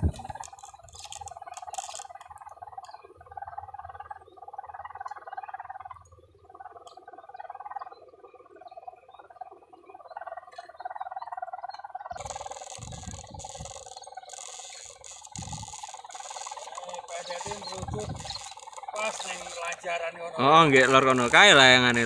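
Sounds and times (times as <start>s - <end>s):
kite hummer buzzing drone: 0.0s - 4.8s, 12.2s - 19.8s, 20.7s - 22.0s.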